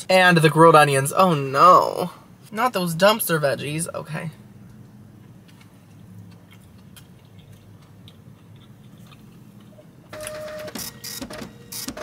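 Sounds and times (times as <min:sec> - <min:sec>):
person chewing food: 0:04.7 - 0:10.1
wet mouth clicks: 0:05.4 - 0:09.8.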